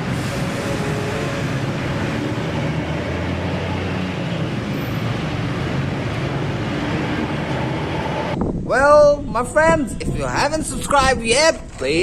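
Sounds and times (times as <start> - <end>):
vehicle rumbling: 0.0 - 8.7.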